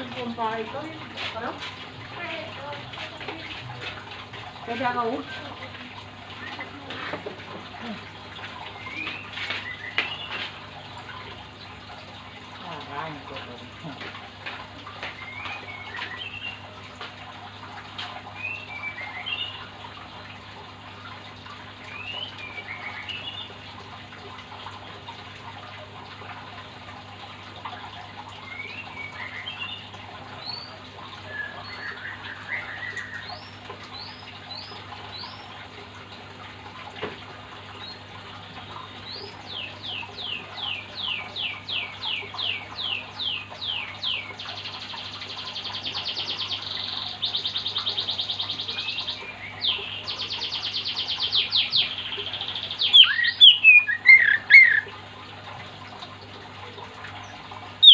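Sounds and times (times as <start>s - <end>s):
bird singing whistled phrases: 52.9s - 54.8s.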